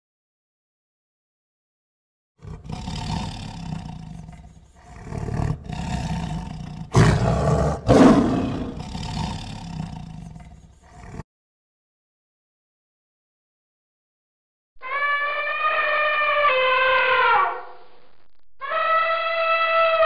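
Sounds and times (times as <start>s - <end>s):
tiger growling and roaring: 2.4s - 11.2s.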